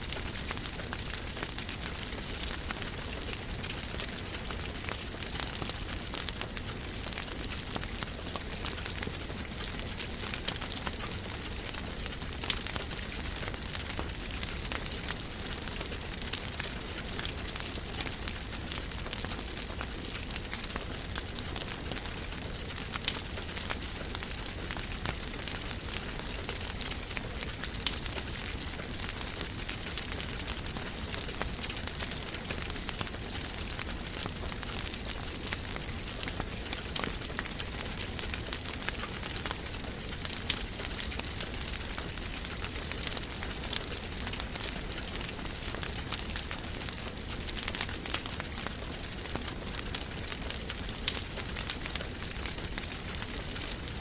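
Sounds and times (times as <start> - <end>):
wood fire crackling: 0.0 - 54.0
fire popping: 0.1 - 54.0.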